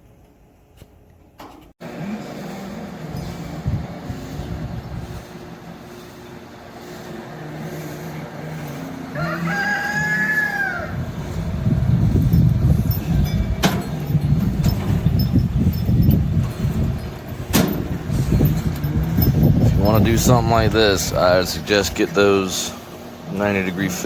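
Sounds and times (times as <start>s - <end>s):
rooster crowing: 9.1s - 11.1s
low rushing rumble: 10.8s - 22.1s.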